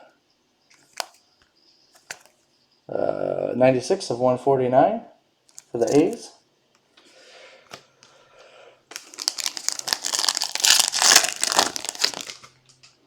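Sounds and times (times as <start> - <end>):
wrapper crinkling: 5.5 - 6.2, 8.9 - 12.6.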